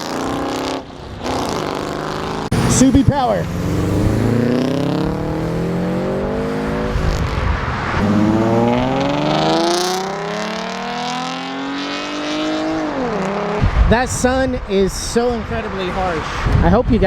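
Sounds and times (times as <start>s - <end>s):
car engine accelerating hard: 0.0s - 13.9s.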